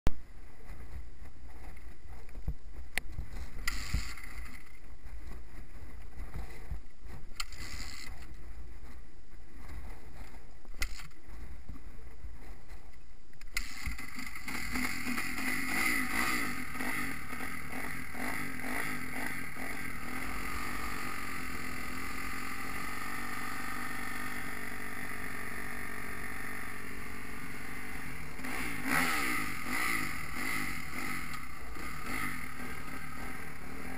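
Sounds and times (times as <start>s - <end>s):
wind rumbling on microphone: 0.1s - 15.4s
motocross bike engine: 0.1s - 33.9s.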